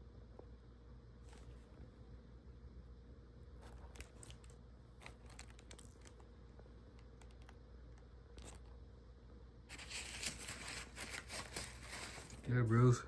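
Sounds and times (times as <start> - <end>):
faint handling clicks and crinkles: 3.6 - 8.8.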